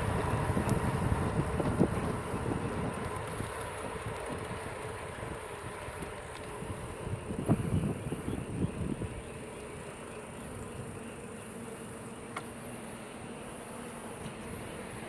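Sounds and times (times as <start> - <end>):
low rumble on microphone: 5.3 - 9.2.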